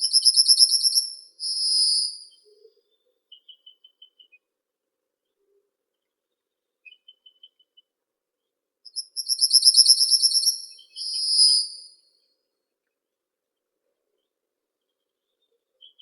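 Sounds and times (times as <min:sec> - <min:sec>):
songbird trilling: 0:00.0 - 0:02.7, 0:08.9 - 0:11.9.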